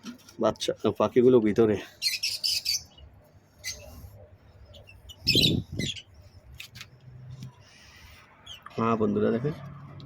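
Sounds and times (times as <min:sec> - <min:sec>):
lovebirds chirping: 0:01.9 - 0:06.8.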